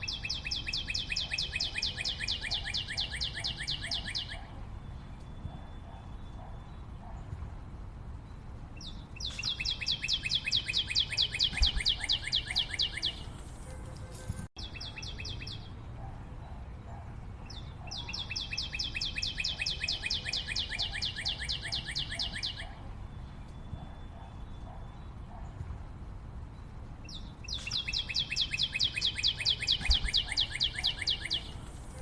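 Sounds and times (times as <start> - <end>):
bird calling in fast trills: 0.0 - 4.6, 9.2 - 13.3, 17.5 - 22.8, 27.5 - 32.0
faint background bird calls: 0.0 - 32.0.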